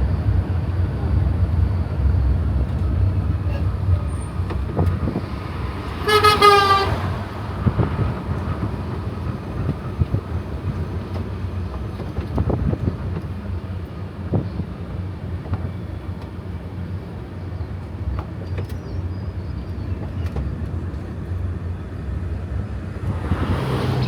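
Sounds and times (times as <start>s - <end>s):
road train engine rumble: 0.0s - 24.0s
horn toot: 5.9s - 7.2s.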